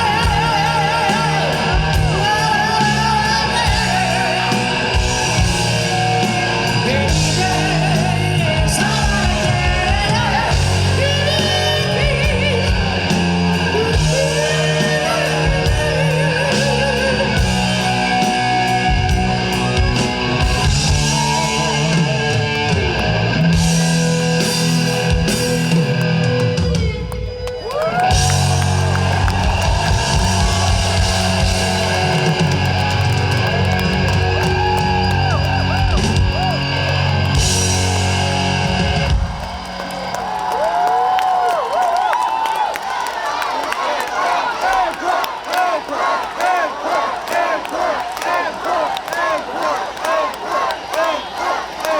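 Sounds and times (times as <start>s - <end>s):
electric guitar: 0.0s - 40.9s
live rock band playing: 0.0s - 41.0s.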